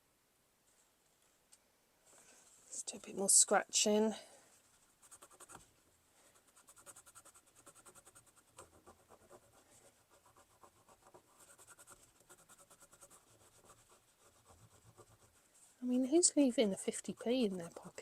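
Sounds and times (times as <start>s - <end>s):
faint scratching on coin: 4.8s - 18.0s.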